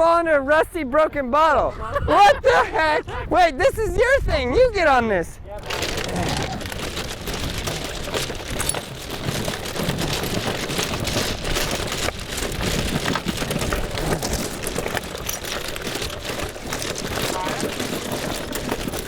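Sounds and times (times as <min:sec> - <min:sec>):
big tyres crunching over gritty ground: 0:05.6 - 0:19.0.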